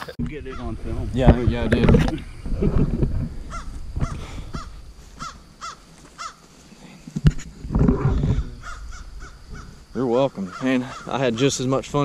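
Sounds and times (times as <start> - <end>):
bird calling: 0.0 - 1.1, 3.4 - 6.6, 8.0 - 11.7.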